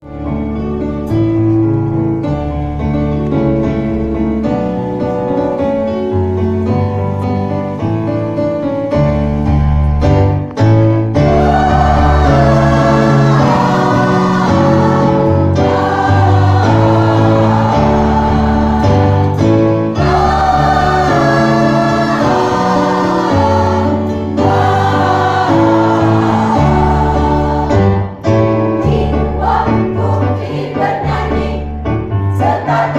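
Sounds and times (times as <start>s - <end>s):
instrumental accompaniment: 0.0s - 32.9s
choir singing a hymn: 11.1s - 32.9s.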